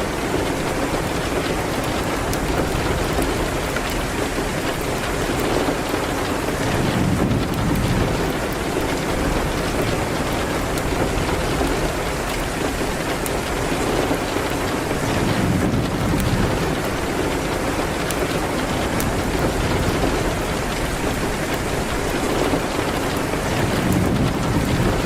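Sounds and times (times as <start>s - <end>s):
rain hissing: 0.0s - 25.0s.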